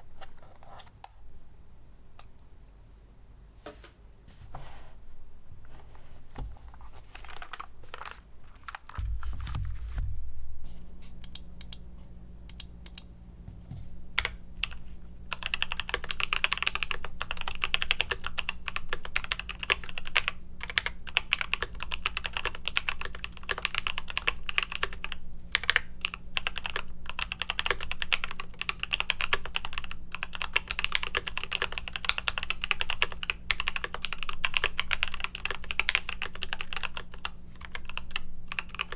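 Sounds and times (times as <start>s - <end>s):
mechanical keyboard typing: 7.0s - 9.0s, 14.2s - 38.9s
low thump: 9.0s - 10.7s.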